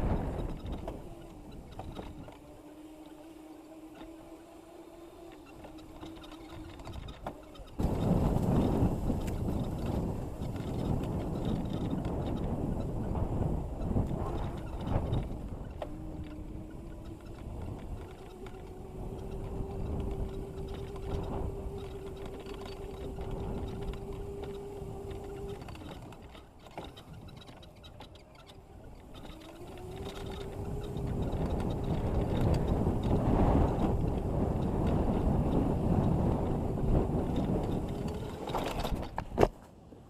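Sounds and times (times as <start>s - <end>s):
electric motor whine: 0.0s - 27.2s, 28.2s - 39.2s.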